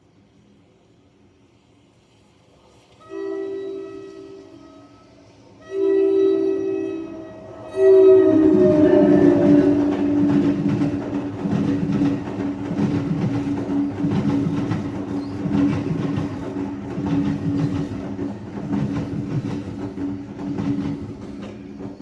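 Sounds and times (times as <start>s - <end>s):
electric locomotive hum: 0.0s - 22.0s
train horn: 3.0s - 12.0s
train wheels rumbling and clattering: 7.4s - 22.0s.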